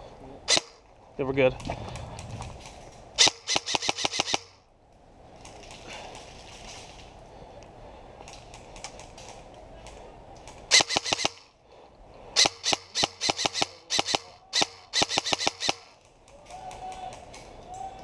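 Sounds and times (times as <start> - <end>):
airsoft guns firing: 3.2 - 4.6, 10.7 - 11.5, 12.4 - 16.1.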